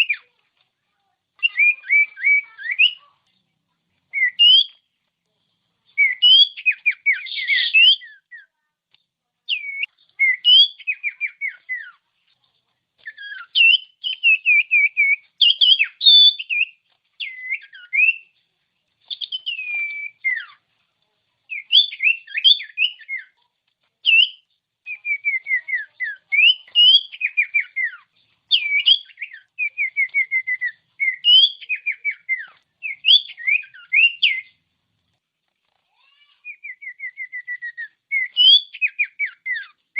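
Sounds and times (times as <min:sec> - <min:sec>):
bird whistling song: 0:00.0 - 0:00.3, 0:01.4 - 0:03.1, 0:04.1 - 0:04.8, 0:06.0 - 0:08.5, 0:09.5 - 0:12.0, 0:13.0 - 0:18.4, 0:19.1 - 0:20.6, 0:21.5 - 0:23.4, 0:24.0 - 0:34.6, 0:36.3 - 0:39.8.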